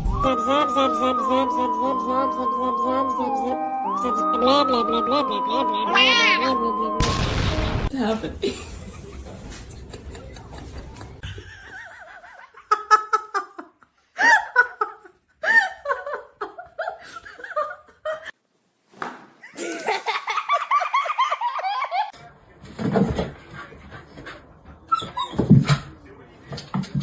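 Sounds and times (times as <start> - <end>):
person laughing: 4.2 - 6.8, 8.4 - 18.3, 19.4 - 22.1.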